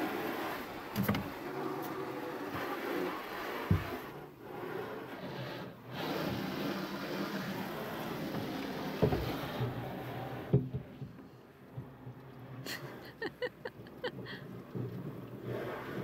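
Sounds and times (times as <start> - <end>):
water spraying against car: 0.0 - 16.0.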